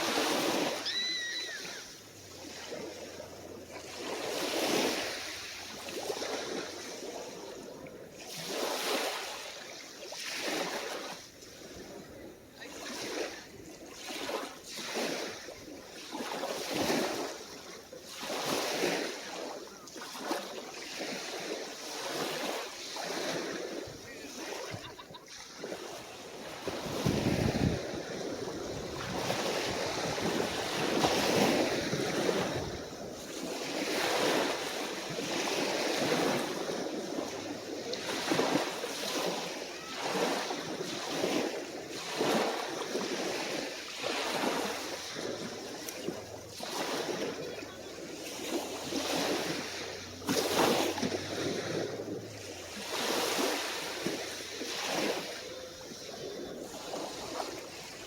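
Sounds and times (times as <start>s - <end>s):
small waves washing onto beach: 0.0s - 58.0s
wind buffeting microphone: 25.6s - 57.8s.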